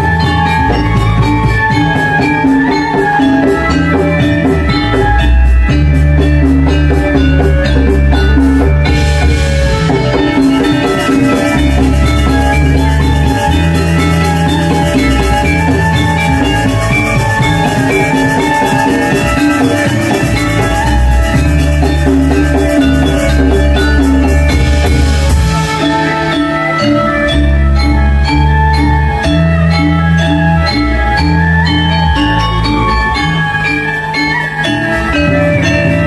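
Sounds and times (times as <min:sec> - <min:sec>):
drums: 0:00.0 - 0:36.0
ringing metallophones: 0:00.0 - 0:36.0.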